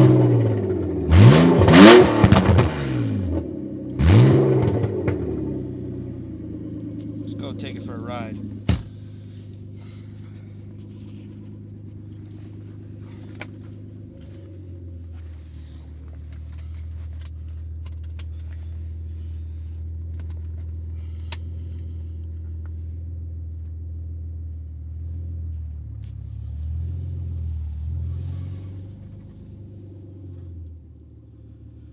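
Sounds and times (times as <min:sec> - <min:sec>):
car engine with exhaust leak: 0:00.0 - 0:31.9.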